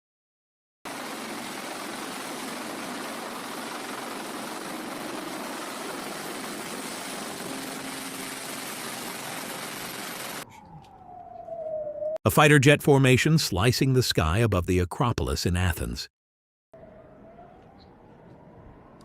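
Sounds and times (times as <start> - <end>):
aircraft engines: 0.9 - 10.6
wind: 0.9 - 12.3, 16.8 - 19.0.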